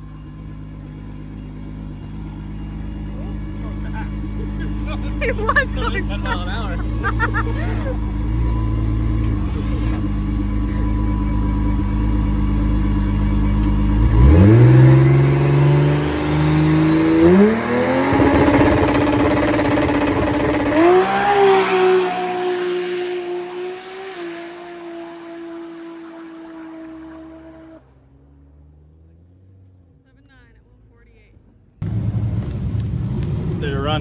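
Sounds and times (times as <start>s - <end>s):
drag car engine accelerating: 0.0s - 30.4s, 31.5s - 34.0s.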